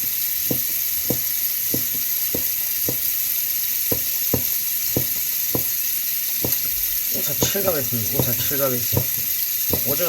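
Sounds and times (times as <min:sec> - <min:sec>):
steady hiss: 0:00.0 - 0:10.0
knife knocking on cutting board: 0:00.5 - 0:03.0, 0:03.9 - 0:05.7, 0:06.4 - 0:06.7, 0:07.4 - 0:10.0.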